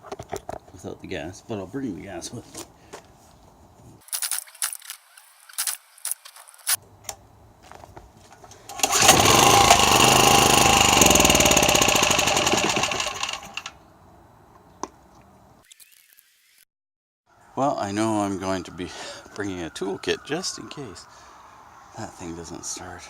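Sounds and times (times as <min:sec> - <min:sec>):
small generator engine running: 0:08.7 - 0:13.7.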